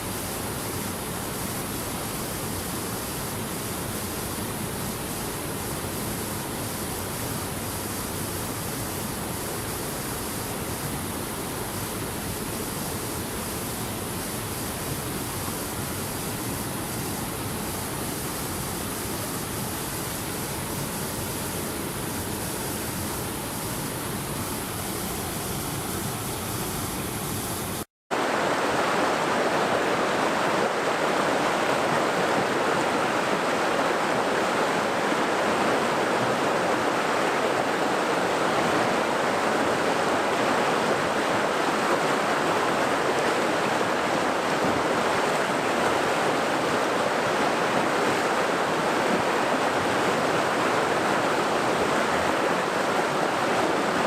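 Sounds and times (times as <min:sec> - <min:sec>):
rushing water: 0:00.0 - 0:54.0.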